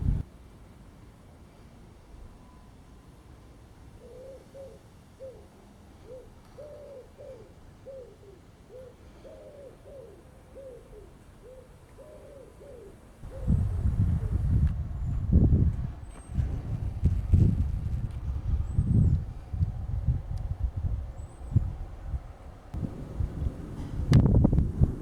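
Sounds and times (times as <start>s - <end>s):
bird hooting faintly: 3.9s - 15.1s.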